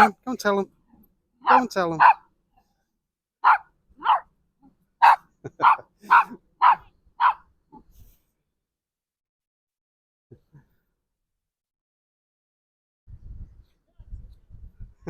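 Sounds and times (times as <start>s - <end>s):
small dog yapping: 1.4s - 2.2s, 3.4s - 4.2s, 5.0s - 7.4s.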